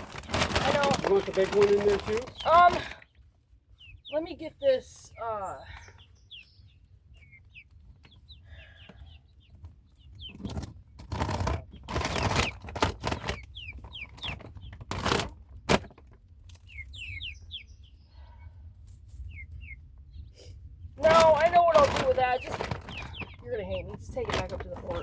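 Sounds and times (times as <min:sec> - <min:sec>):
rustling and knocking: 0:00.0 - 0:03.0, 0:09.6 - 0:16.2, 0:21.0 - 0:25.0
chicks peeping: 0:00.0 - 0:25.0.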